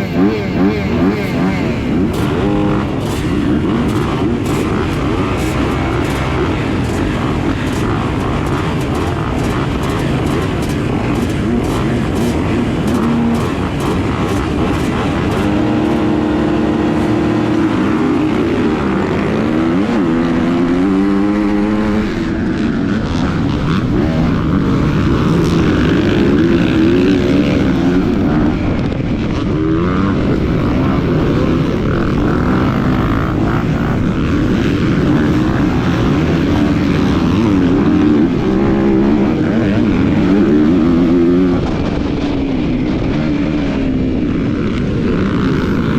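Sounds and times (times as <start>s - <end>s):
motocross bike engine revving: 0.0s - 45.9s
steady rushing noise: 0.0s - 45.9s.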